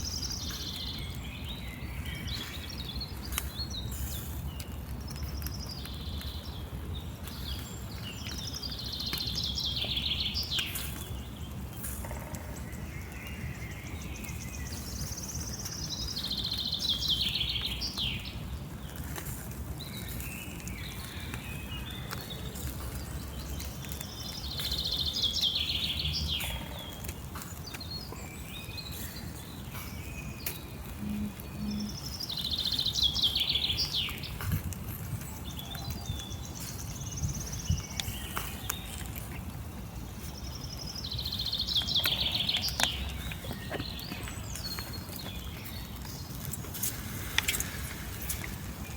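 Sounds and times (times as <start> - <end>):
outdoor background noise: 0.0 - 48.9
songbird singing: 0.0 - 48.9.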